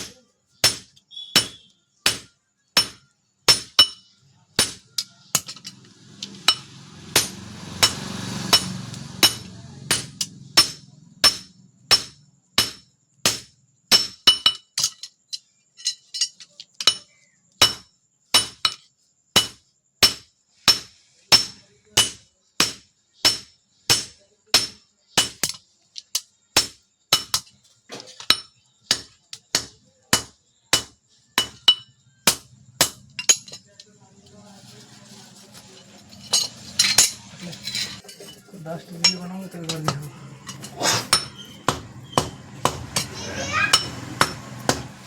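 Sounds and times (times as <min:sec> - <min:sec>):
hammer striking steel on anvil: 0:00.0 - 0:04.0, 0:06.3 - 0:14.9, 0:19.4 - 0:25.6, 0:28.2 - 0:33.7, 0:39.7 - 0:45.0.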